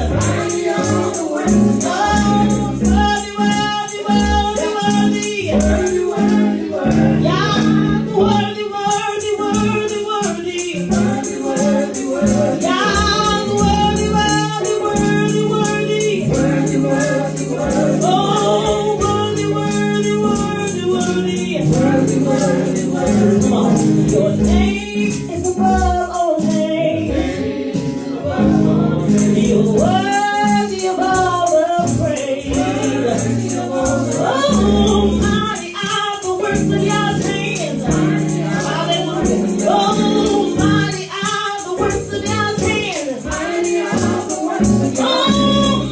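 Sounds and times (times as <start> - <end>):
band with steady bass: 0.0 - 4.5
tambourine shaking: 0.0 - 45.9
voices singing: 0.0 - 45.9.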